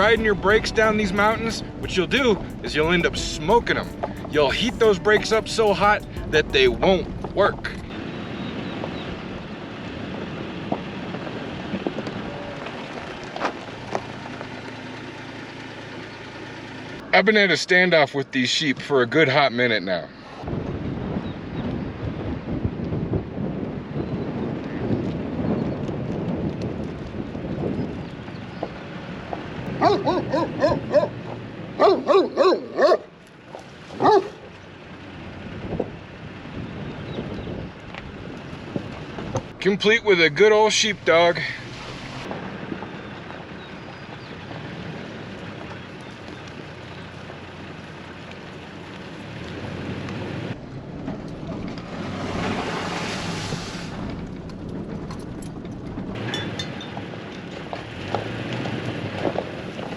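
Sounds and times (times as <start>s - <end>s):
wind rushing over microphone: 0.0s - 4.4s, 20.4s - 32.1s, 35.3s - 45.8s, 49.4s - 59.9s
dog barking: 29.8s - 31.2s, 31.8s - 33.1s, 34.0s - 34.5s.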